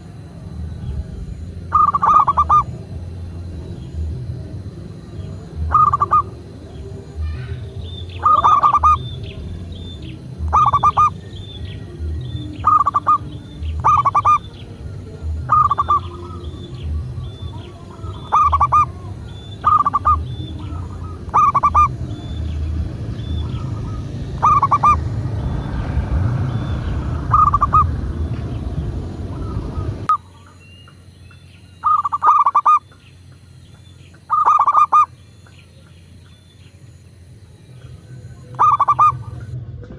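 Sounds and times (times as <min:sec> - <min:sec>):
low rumbling background noise: 0:00.0 - 0:39.9
faint high chirp: 0:00.8 - 0:02.8, 0:05.1 - 0:27.9, 0:29.3 - 0:39.6
dove cooing: 0:01.6 - 0:03.0, 0:03.9 - 0:28.3, 0:31.8 - 0:32.9, 0:34.2 - 0:35.6, 0:38.0 - 0:39.6.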